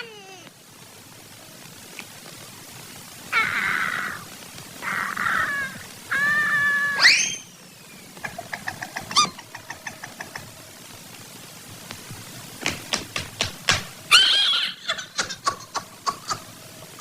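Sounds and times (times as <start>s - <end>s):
animal-like nasal cries: 0.0s - 0.5s, 14.1s - 15.1s
fast chirping clicks: 7.1s - 10.8s, 12.6s - 17.0s.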